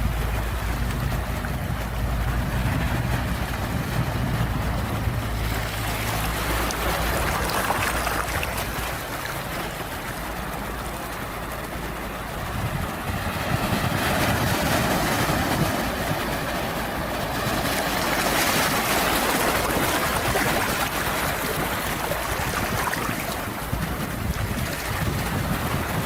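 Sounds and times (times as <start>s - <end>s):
low rumble: 0.0s - 9.3s
sea waves washing: 0.0s - 26.0s.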